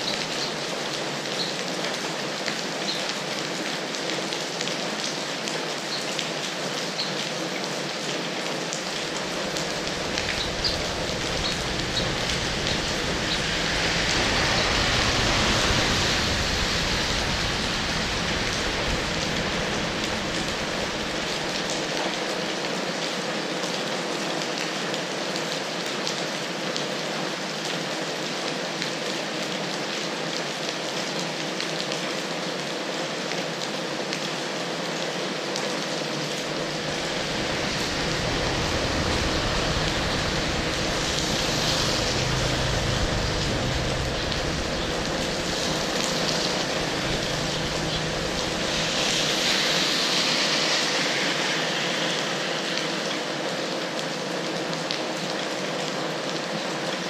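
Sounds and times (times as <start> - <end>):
heavy rain falling: 0.0 - 57.0
low rumble: 8.8 - 22.5, 36.0 - 53.6.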